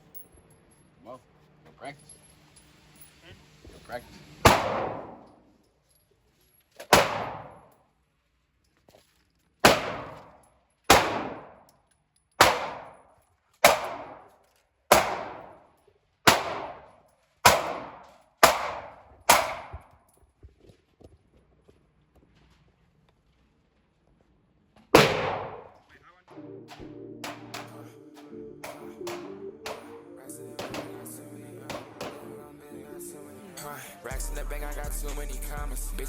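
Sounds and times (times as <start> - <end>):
gunshots: 4.4 - 5.2, 6.9 - 7.7, 9.6 - 11.6, 12.4 - 13.0, 13.6 - 14.3, 14.9 - 15.6, 16.3 - 19.9, 24.9 - 25.8, 26.7 - 30.0, 30.6 - 32.4.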